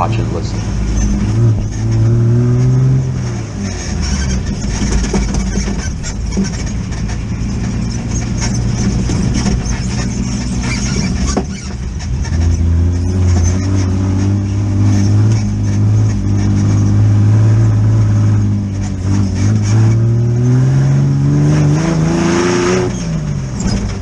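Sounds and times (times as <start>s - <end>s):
buggy engine driving over dirt: 0.0s - 24.0s
chassis knocks and rattles: 3.6s - 17.0s, 22.9s - 24.0s.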